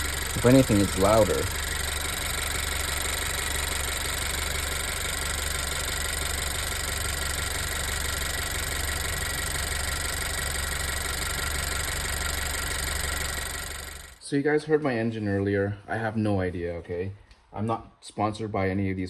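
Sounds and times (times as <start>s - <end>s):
car engine running: 0.0s - 14.2s.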